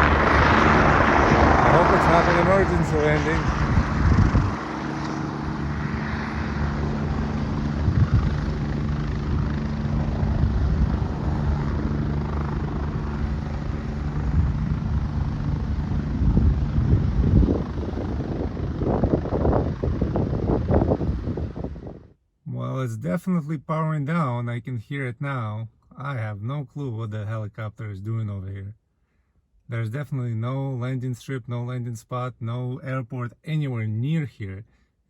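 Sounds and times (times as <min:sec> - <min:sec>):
helicopter engine and rotor: 0:00.0 - 0:22.1.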